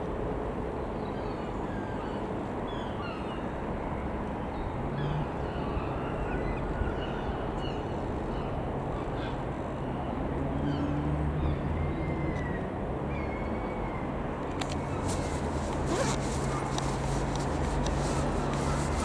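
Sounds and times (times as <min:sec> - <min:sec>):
birds calling: 0:14.7 - 0:19.0.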